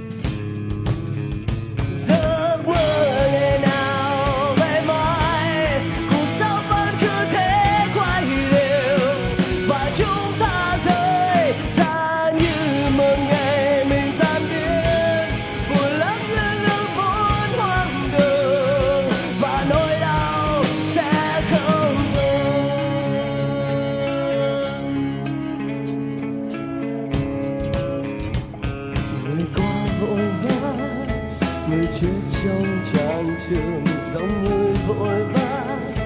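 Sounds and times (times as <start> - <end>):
lead guitar melody with vibrato: 0.0 - 36.0
rock band playing live: 0.0 - 36.0
quiet guitar passage: 22.8 - 36.0.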